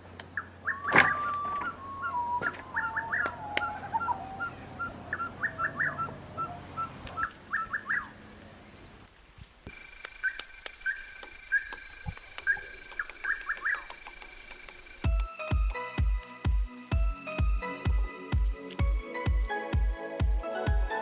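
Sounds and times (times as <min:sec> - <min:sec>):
birds chirping: 0:00.4 - 0:09.1, 0:09.7 - 0:16.0.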